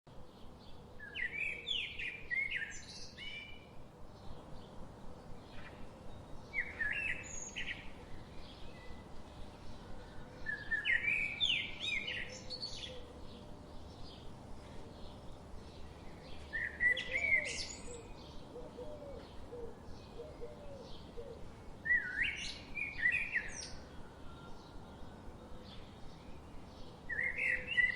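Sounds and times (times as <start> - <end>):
songbird singing: 0.1 - 27.9.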